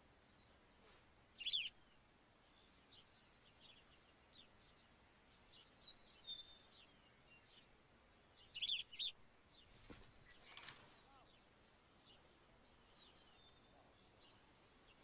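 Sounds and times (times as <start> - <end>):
small birds chirping: 0.0 - 15.0
rustling noise: 9.6 - 11.0.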